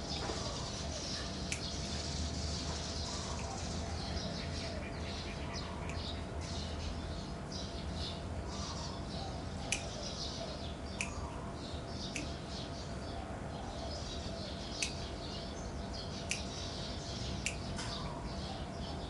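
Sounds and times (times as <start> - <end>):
small birds chirping: 0.0 - 19.0
steady low hum: 0.0 - 19.0
sharp clicks: 12.1 - 12.3, 14.8 - 15.0, 16.2 - 16.5, 17.4 - 17.7.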